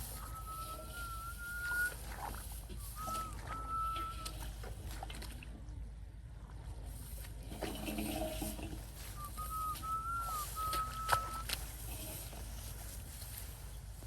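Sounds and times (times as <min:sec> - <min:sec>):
thin steady whistle: 0:00.0 - 0:02.0, 0:02.7 - 0:04.5, 0:09.0 - 0:11.6
water splashing and trickling: 0:00.0 - 0:14.0.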